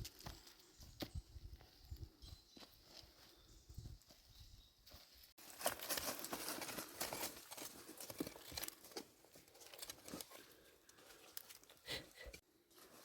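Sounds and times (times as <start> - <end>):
rustling and crackling with snaps: 5.4 - 11.9.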